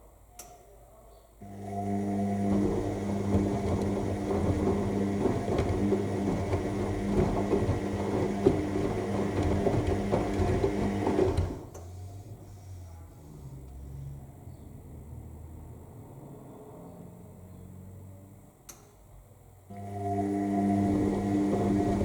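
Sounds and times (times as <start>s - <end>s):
washing machine motor humming: 1.4s - 12.4s, 19.7s - 22.0s
laundry tumbling clicks and knocks: 1.9s - 11.7s.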